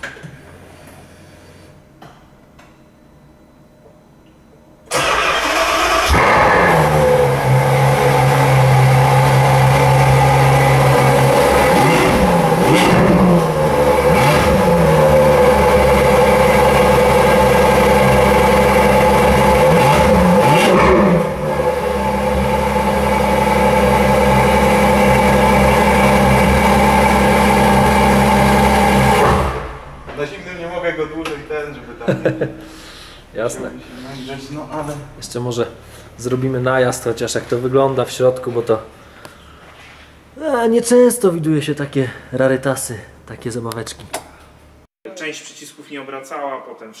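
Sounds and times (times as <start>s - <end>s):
sports car engine revving: 5.2s - 30.1s.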